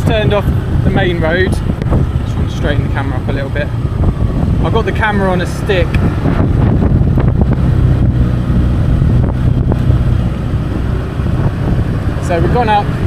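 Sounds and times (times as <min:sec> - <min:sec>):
motorbike engine running: 0:00.0 - 0:13.0
wind buffeting microphone: 0:00.0 - 0:13.0.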